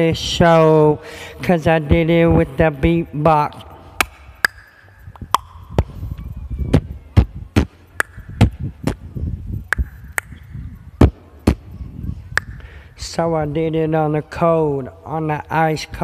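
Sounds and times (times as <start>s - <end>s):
beatboxing pops and clicks: 4.0s - 11.7s, 12.3s - 12.7s.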